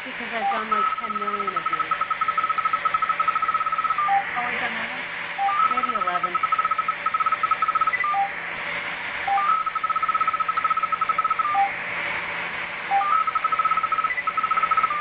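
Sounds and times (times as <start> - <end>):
rapid electronic beeping: 0.3 - 4.6, 5.4 - 8.4, 9.3 - 11.8, 12.9 - 15.0
single lower beeps: 5.4 - 8.3.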